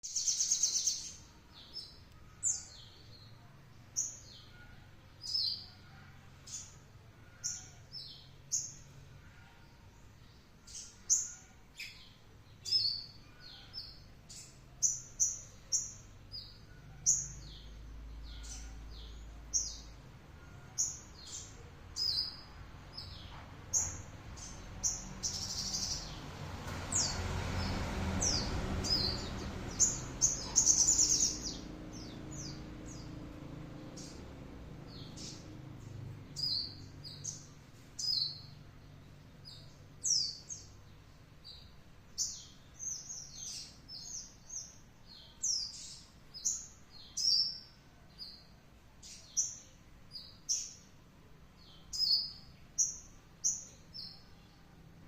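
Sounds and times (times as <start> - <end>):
songbird calling: 10.6 - 26.2, 28.2 - 33.2.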